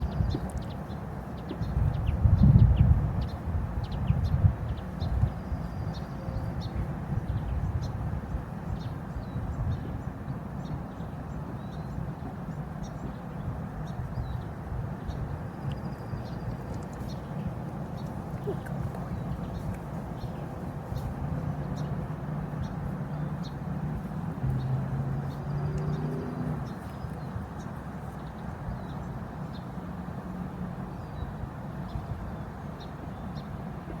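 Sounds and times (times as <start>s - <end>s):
small birds chirping: 0.0s - 8.0s.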